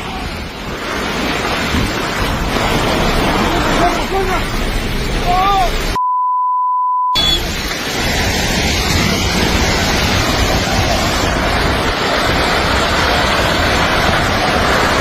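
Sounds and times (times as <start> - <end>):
storm wind and water rushing: 0.0 - 6.0, 7.2 - 15.0
wind buffeting microphone: 0.0 - 6.0, 7.4 - 15.0
censor bleep: 6.0 - 7.5.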